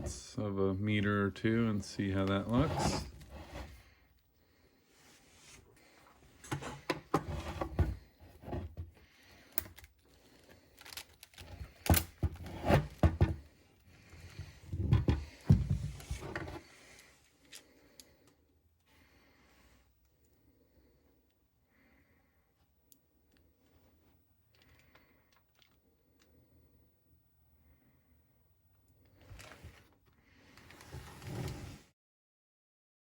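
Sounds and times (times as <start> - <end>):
handling clicks and knocks: 10.8 - 13.4.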